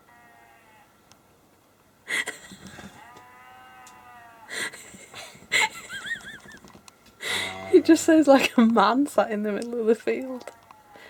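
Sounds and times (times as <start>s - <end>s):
rustling: 2.4s - 3.2s
farm animal hoarse call: 2.4s - 5.2s, 7.2s - 8.4s.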